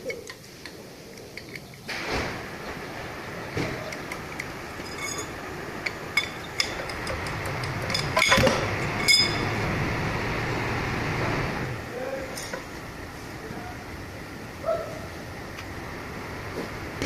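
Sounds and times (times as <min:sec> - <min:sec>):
low hum: 0:02.2 - 0:12.0
metal tools striking steel: 0:04.8 - 0:09.6.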